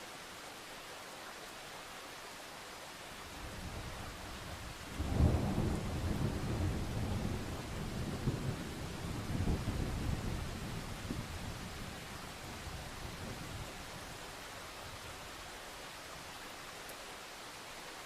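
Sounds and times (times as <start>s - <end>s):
steady rain: 0.0s - 18.0s
thunder rumbling: 5.0s - 13.6s.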